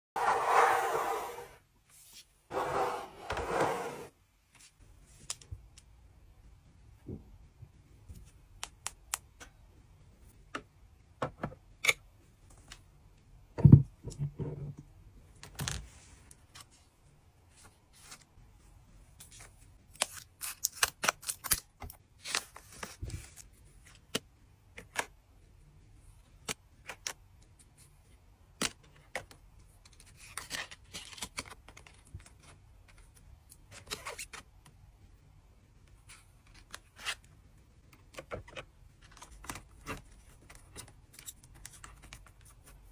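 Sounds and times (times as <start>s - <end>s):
cards and packaging clicking: 19.3s - 22.9s.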